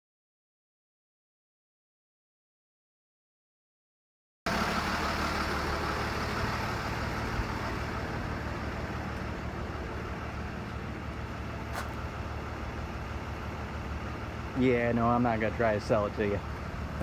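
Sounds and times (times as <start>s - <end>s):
vehicle engine idling: 4.5s - 17.0s.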